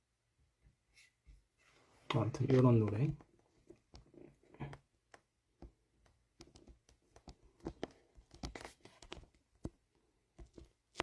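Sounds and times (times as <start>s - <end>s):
handling noise clicks and taps: 2.5s - 9.8s.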